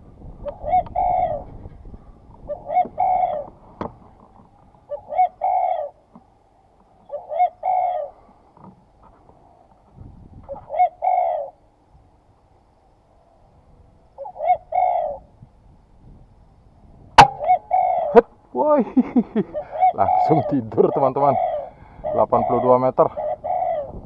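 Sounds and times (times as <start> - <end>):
dove cooing: 0.4 - 4.0, 4.6 - 6.2, 7.0 - 8.4, 10.5 - 11.6, 14.2 - 15.3, 17.2 - 18.3, 19.3 - 24.0.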